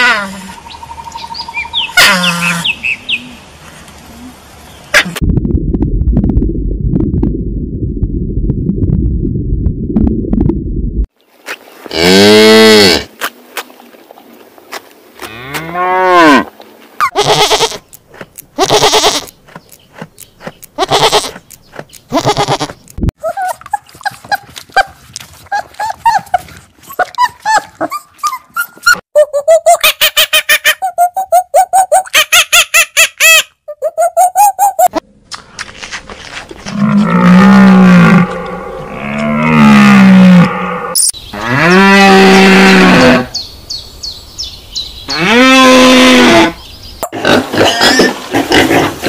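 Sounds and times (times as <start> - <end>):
low rumbling: 5.2 - 11.1
goats bleating: 17.0 - 17.8, 18.6 - 19.3, 20.8 - 21.4, 22.1 - 22.8.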